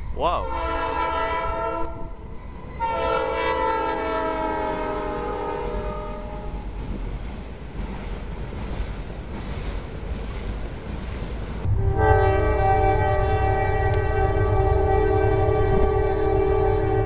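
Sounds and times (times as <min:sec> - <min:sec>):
locomotive horn: 0:00.4 - 0:06.6, 0:11.7 - 0:17.0.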